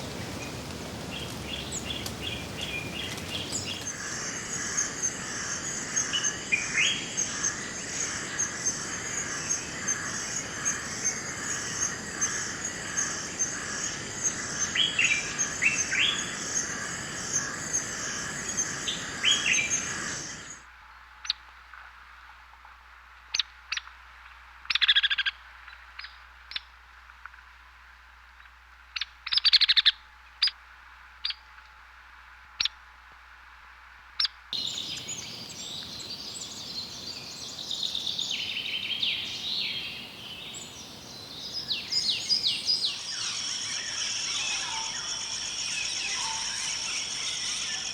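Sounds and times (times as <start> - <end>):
sharp bird chirps: 34.6 - 47.9
short rising bird calls: 34.6 - 47.9.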